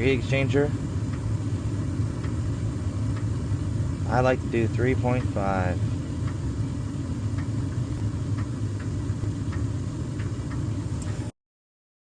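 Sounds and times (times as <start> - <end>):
gas furnace humming: 0.0 - 11.4.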